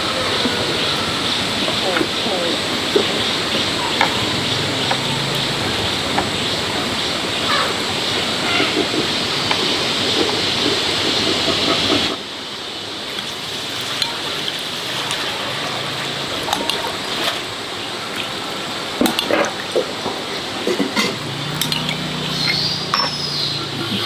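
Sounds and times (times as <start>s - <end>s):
steady watery hiss: 0.0s - 24.0s
dishes and utensils clinking: 20.6s - 24.0s.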